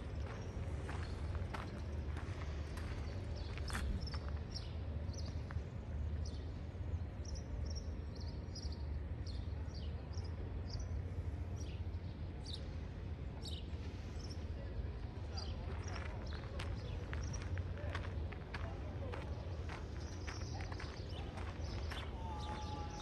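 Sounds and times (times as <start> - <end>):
low outdoor rumble: 0.0 - 23.0
small birds chirping: 15.3 - 23.0.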